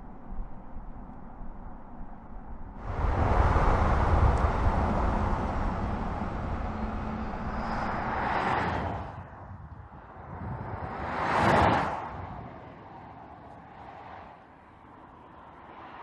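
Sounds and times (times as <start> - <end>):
electric car driving by: 2.8 - 9.3.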